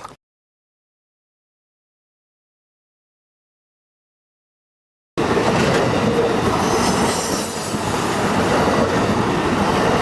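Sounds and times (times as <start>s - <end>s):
train wheels rumbling on rail: 5.2s - 10.0s
high wheel squealing: 6.6s - 8.6s.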